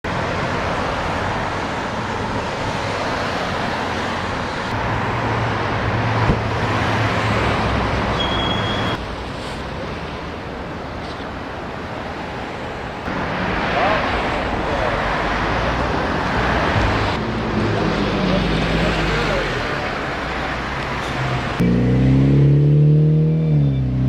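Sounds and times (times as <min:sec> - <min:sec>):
brief high beep: 0:08.2 - 0:09.0
vehicle engine rumbling: 0:12.6 - 0:24.0.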